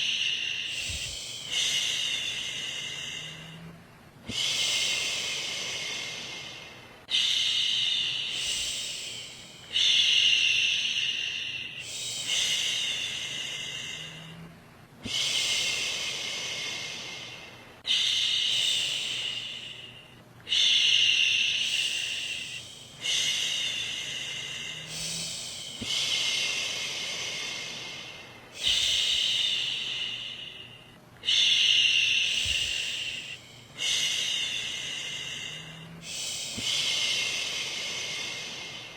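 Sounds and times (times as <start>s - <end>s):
woman shushing: 24.8s - 26.4s, 31.3s - 33.6s.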